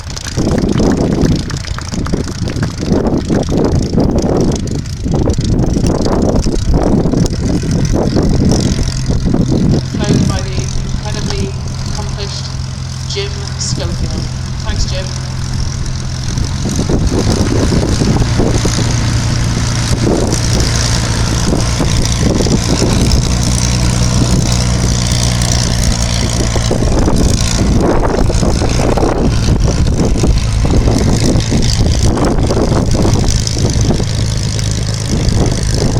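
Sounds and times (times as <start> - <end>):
piston engine running: 0.0 - 35.9.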